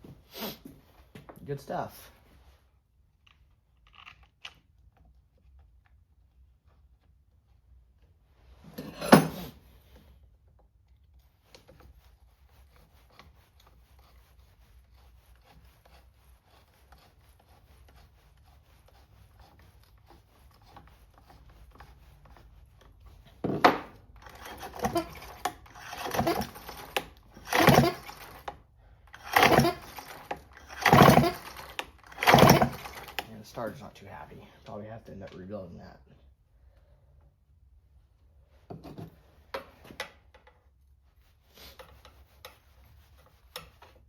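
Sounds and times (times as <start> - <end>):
chainsaw recoil starter pulls: 24.2 - 28.5, 29.1 - 33.4.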